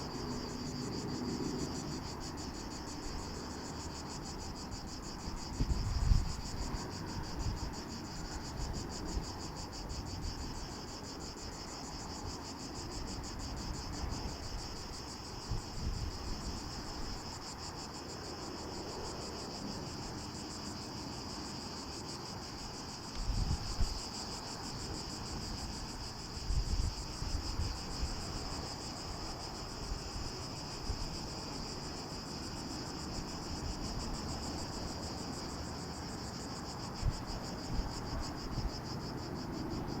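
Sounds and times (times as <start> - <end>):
insects chorus: 0.0 - 40.0
wind gusts on microphone: 2.0 - 10.9, 13.0 - 17.5, 22.7 - 32.4, 33.1 - 40.0.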